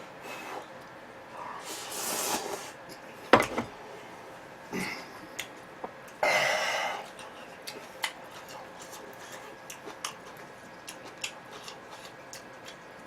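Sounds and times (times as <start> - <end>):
noisy mouthful eating: 4.8 - 13.0
sharp chewing: 7.1 - 13.0.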